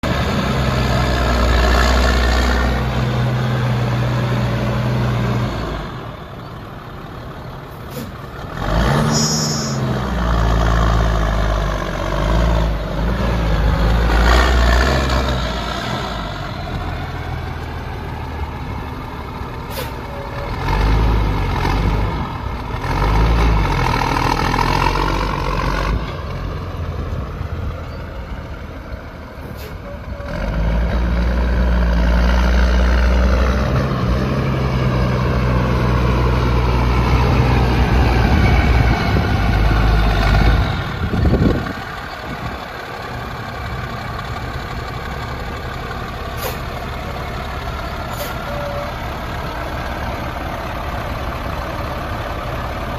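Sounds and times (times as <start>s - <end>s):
diesel truck engine revving: 0.0s - 52.9s
brief high hiss: 46.4s - 46.6s.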